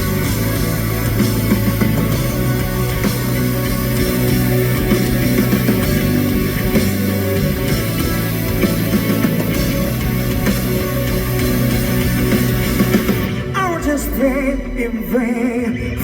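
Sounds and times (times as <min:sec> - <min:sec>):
rock band playing: 0:00.0 - 0:15.2
low bass notes: 0:00.0 - 0:16.0.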